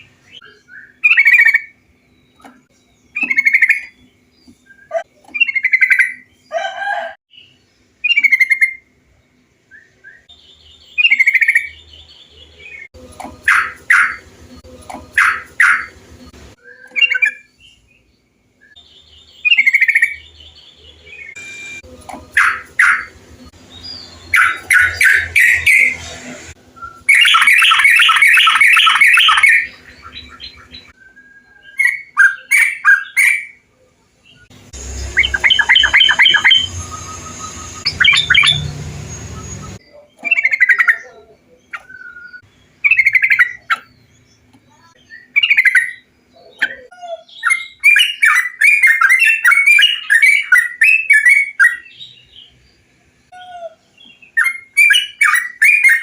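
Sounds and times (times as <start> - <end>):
bulbuls chattering and chirping: 0.0 - 17.9, 18.8 - 31.0, 31.6 - 56.0
bird rapid repeated notes: 13.3 - 14.4, 15.0 - 16.3, 21.2 - 26.4, 27.0 - 30.8, 34.6 - 39.8.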